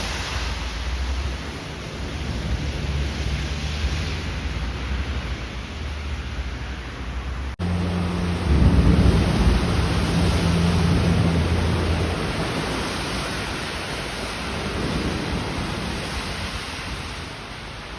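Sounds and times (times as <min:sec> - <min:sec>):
heavy rain hissing: 0:00.0 - 0:17.9
low thunder rumble: 0:07.6 - 0:17.9.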